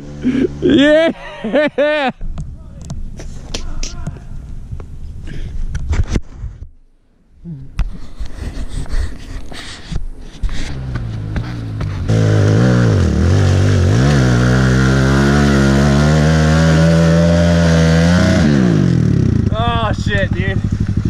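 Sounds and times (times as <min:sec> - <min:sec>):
small motorbike engine revving: 0:10.7 - 0:19.5.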